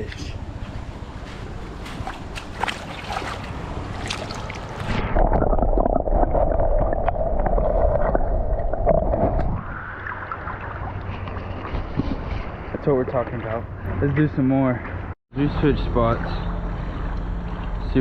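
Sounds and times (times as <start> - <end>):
water splashing and gurgling: 1.9 - 13.3.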